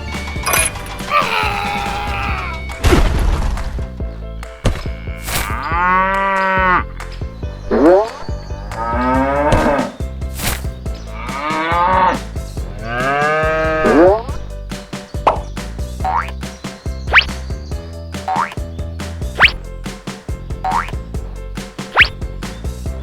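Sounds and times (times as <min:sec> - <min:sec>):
thud: 0:02.8 - 0:04.0
cows mooing: 0:04.8 - 0:06.9, 0:08.7 - 0:10.0, 0:11.1 - 0:14.3.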